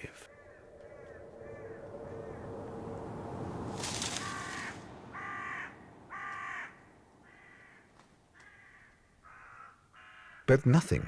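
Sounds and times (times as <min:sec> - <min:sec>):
bird cawing: 0:00.2 - 0:10.5
brief rustle: 0:03.6 - 0:05.0.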